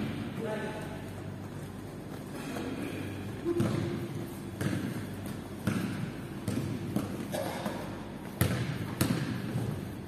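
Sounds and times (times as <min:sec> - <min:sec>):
basketball bouncing on court: 0:03.4 - 0:09.9.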